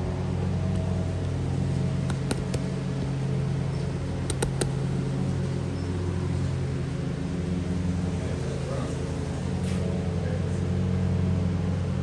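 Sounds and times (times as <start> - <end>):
sharp clicks: 2.1 - 2.7, 4.3 - 5.0.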